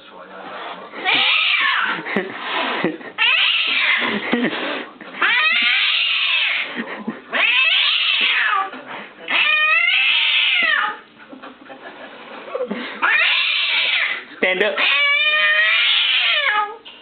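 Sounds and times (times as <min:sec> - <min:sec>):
cat yowling: 0:01.0 - 0:02.0, 0:03.2 - 0:04.1, 0:05.2 - 0:06.7, 0:07.3 - 0:08.7, 0:09.3 - 0:11.0, 0:13.0 - 0:14.2, 0:14.8 - 0:16.8.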